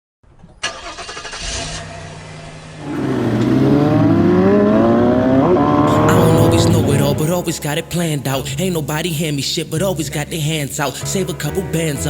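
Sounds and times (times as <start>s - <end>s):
car engine revving: 0.6s - 9.1s.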